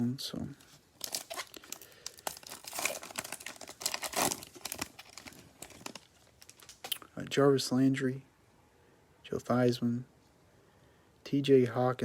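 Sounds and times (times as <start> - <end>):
foil wrapper tearing and crinkling: 1.0 - 7.0.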